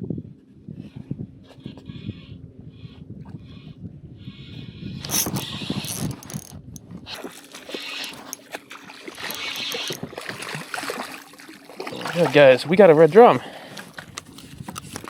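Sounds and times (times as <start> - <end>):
fishing reel cranking and ratcheting: 5.0 - 8.5, 9.2 - 10.1
clicks and rustles: 5.0 - 8.6, 14.1 - 15.0.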